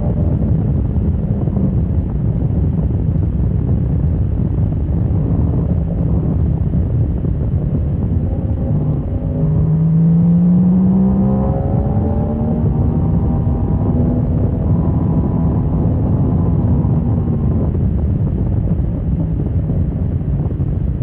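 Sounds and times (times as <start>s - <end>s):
wind noise: 0.0s - 21.0s
motorcycle engine accelerating: 5.1s - 20.0s.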